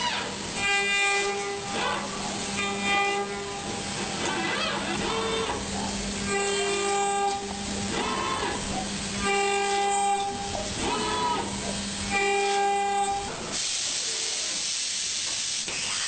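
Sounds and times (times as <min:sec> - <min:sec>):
multi-tone horn blasts: 0:00.6 - 0:03.8, 0:06.2 - 0:08.6, 0:09.2 - 0:11.5, 0:12.1 - 0:13.4.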